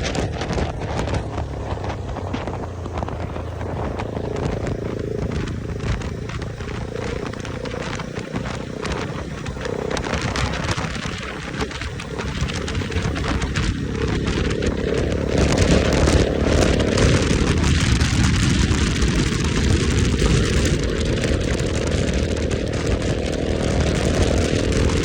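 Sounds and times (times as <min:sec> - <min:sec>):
motorcycle engine running: 0:00.0 - 0:25.0
wind buffeting microphone: 0:00.0 - 0:25.0.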